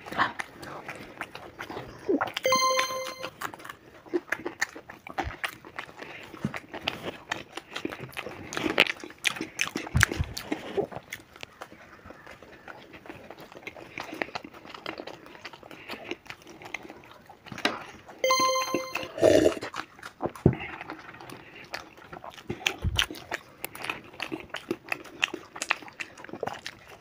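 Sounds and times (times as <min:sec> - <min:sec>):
close chewing and lip smacking: 0:00.0 - 0:02.5, 0:03.4 - 0:18.2, 0:19.4 - 0:27.0
short ringing tone: 0:02.4 - 0:03.3, 0:18.2 - 0:19.5.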